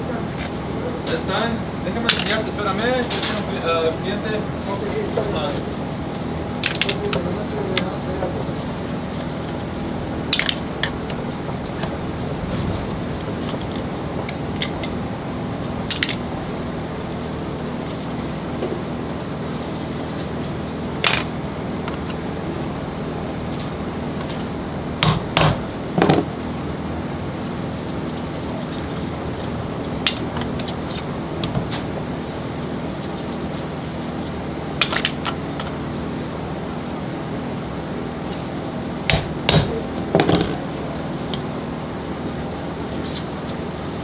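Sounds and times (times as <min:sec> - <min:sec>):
steady background hum: 0:00.0 - 0:44.0
metal tools clinking: 0:04.5 - 0:05.6.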